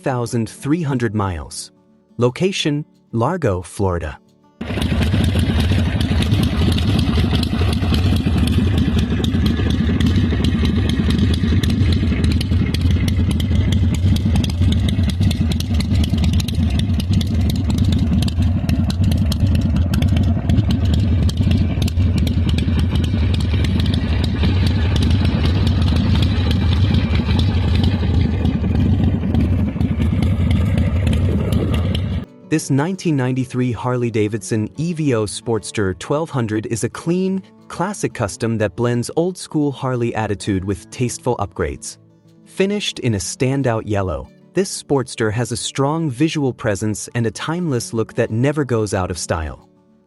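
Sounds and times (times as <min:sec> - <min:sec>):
motorcycle engine running: 0:04.6 - 0:32.3.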